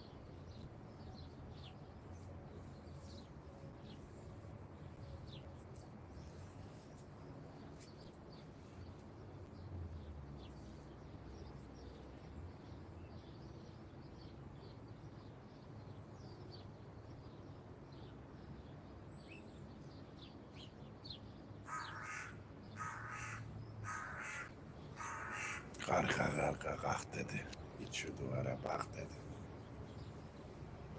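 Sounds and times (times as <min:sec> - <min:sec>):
distant motorway traffic rumble: 0:00.0 - 0:30.9
small birds chirping: 0:00.0 - 0:30.9
crow cawing: 0:21.7 - 0:25.8.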